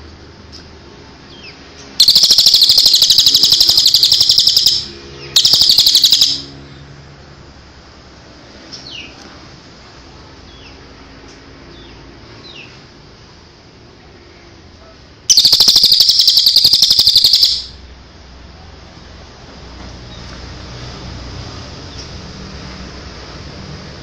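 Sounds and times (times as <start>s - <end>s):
faint downward bird chirps: 2.0s - 6.6s, 15.3s - 17.8s
songbird rapid high trill: 2.0s - 6.6s, 15.3s - 17.8s.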